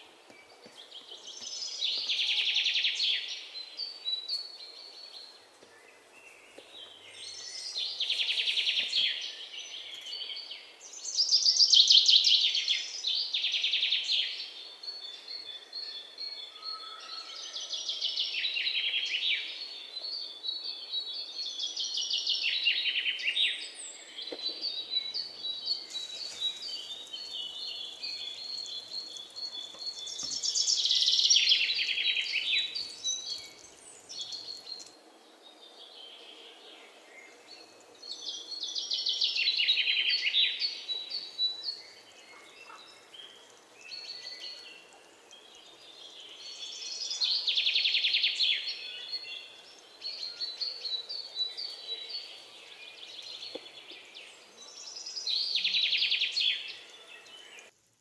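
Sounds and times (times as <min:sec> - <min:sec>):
birds chirping: 0:19.0 - 0:57.7.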